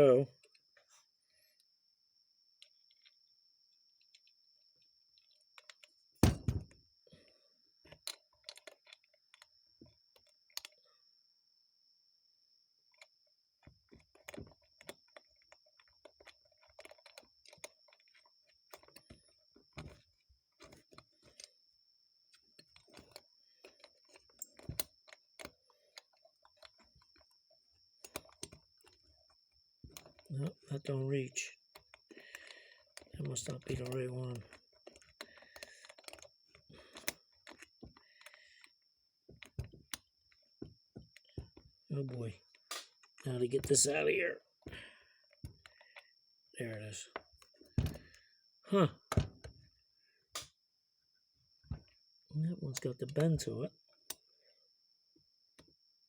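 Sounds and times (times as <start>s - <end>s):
small metal parts clattering: 31.8s - 38.7s.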